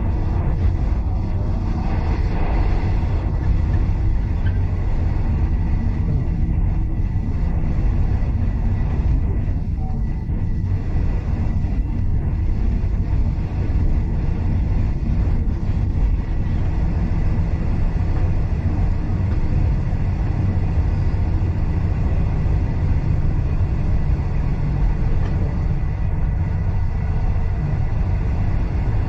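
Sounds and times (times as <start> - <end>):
train carriage rumbling on track: 0.0 - 29.0.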